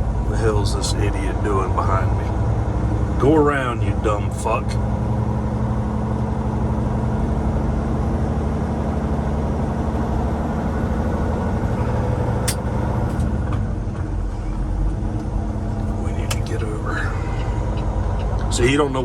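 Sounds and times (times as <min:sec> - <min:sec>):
diesel truck engine running: 0:00.0 - 0:19.0
road noise: 0:00.0 - 0:19.0
sharp click: 0:12.4 - 0:13.3.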